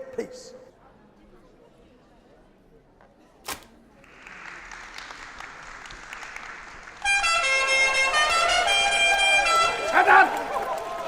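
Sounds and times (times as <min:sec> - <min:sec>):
applause: 0:04.0 - 0:11.0
loud blare of horn chord: 0:07.0 - 0:10.0.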